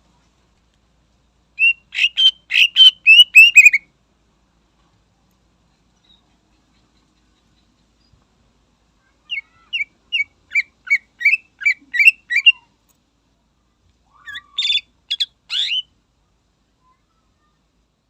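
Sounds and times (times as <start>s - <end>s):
bird chirping: 1.6s - 3.8s, 5.9s - 8.2s, 9.3s - 12.7s, 14.1s - 15.9s.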